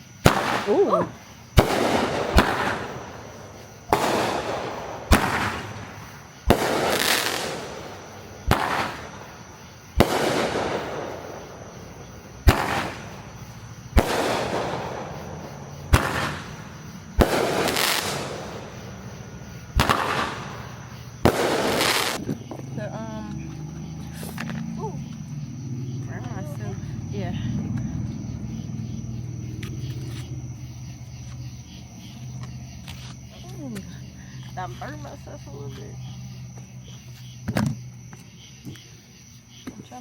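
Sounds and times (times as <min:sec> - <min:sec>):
fireworks crackling and hissing: 0:00.0 - 0:25.3
fireworks bangs: 0:00.0 - 0:32.7.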